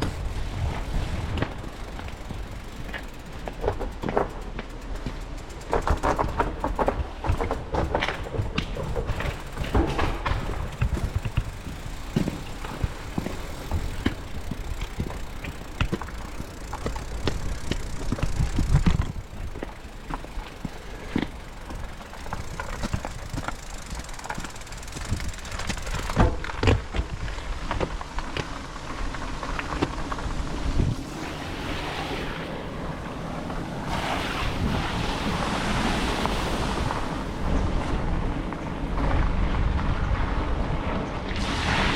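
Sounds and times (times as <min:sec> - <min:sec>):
wind buffeting microphone: 0:00.0 - 0:27.9
bike knocks and rattles: 0:00.0 - 0:31.0
hiss of wet tyres: 0:41.4 - 0:41.9.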